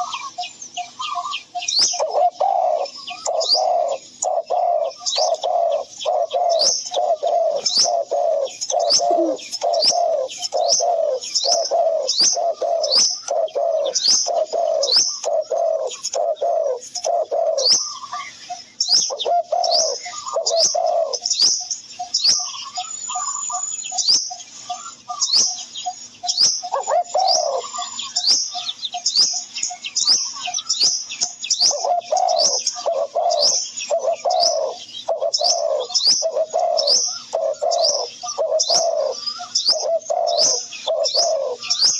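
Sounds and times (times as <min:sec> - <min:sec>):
high bird chirps: 0:00.0 - 0:41.9
low repeated bird calls: 0:00.0 - 0:41.9.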